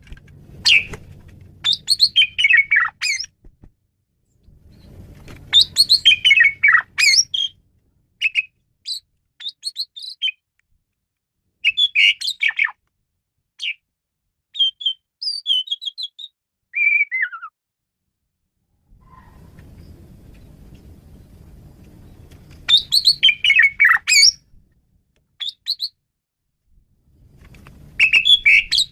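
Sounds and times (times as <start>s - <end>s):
faint low rumble: 0.0s - 8.8s, 18.7s - 23.2s, 26.6s - 28.8s
starling singing: 0.6s - 1.0s, 1.6s - 3.3s, 5.5s - 7.6s, 8.2s - 10.4s, 11.6s - 12.8s, 22.7s - 24.4s, 28.0s - 28.9s.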